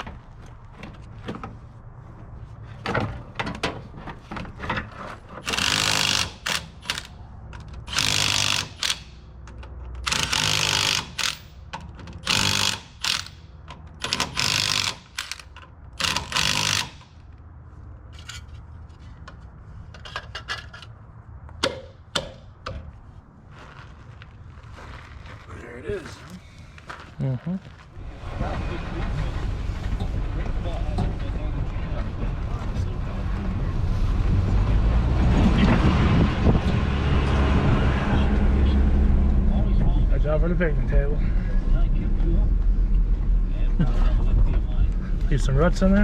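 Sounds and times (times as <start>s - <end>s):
clicks and clanks: 2.8s - 17.4s, 19.2s - 21.0s
steady low rumble: 22.9s - 46.0s.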